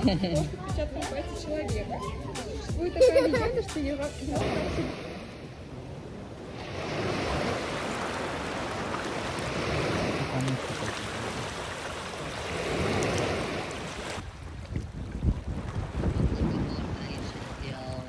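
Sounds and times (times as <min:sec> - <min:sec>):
sea surf washing in: 0:00.0 - 0:14.3
wind on microphone: 0:01.4 - 0:18.0.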